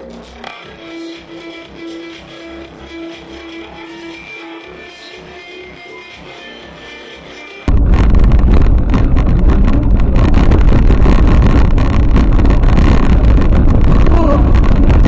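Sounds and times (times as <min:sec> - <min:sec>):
vehicle rumble: 0:07.7 - 0:15.0
wind buffeting microphone: 0:07.7 - 0:15.0.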